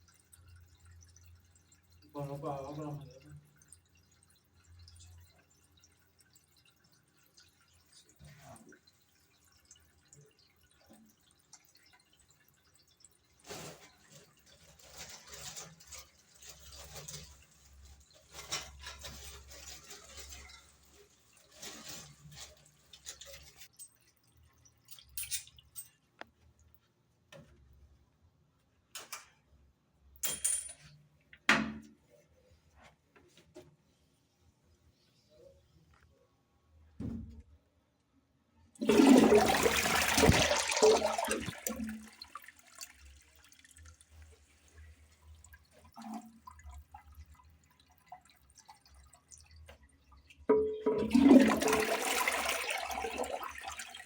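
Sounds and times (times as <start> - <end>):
water dripping and splashing: 0.0 - 26.8, 38.8 - 54.0.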